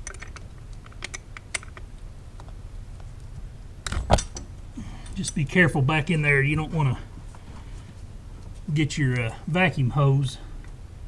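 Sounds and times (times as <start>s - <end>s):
metal knock and clank: 3.9s - 4.5s.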